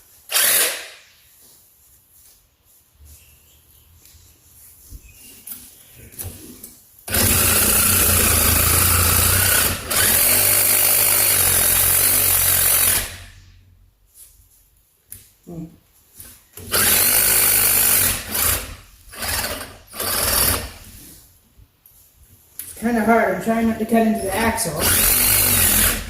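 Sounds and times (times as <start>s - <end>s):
power tool cutting metal: 0.3s - 1.0s, 7.1s - 13.3s, 16.7s - 20.8s, 24.8s - 26.0s.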